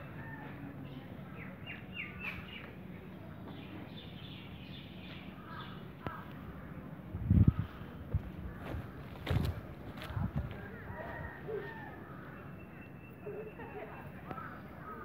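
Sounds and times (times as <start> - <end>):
faint low hum: 0.0 - 15.0
small birds chirping: 0.8 - 10.8.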